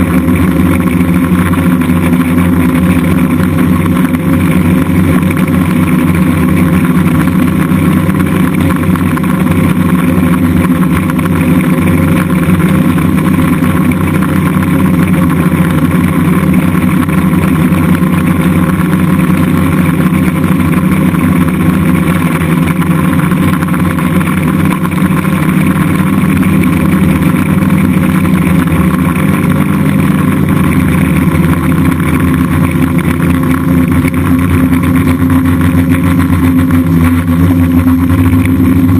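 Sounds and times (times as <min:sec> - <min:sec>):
drone propellers buzzing: 0:00.0 - 0:38.9.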